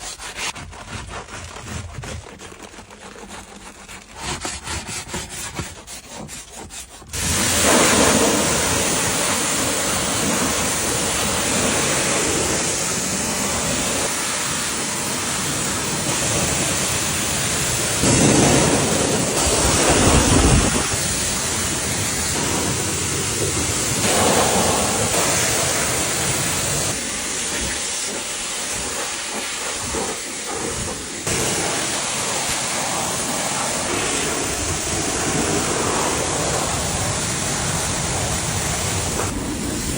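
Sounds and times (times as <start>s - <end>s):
scrubbing strokes: 0.0s - 14.2s
high-pressure water spray: 4.2s - 39.9s.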